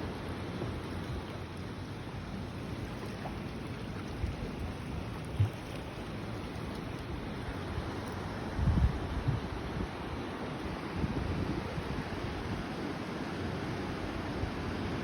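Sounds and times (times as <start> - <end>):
water rushing: 0.0 - 15.0
wind rumble on microphone: 2.8 - 5.9, 6.5 - 15.0.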